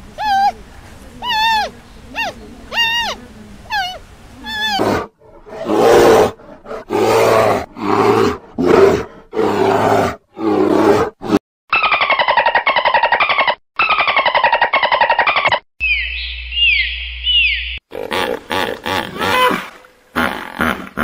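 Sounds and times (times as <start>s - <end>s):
bears growling loudly: 4.5s - 11.4s.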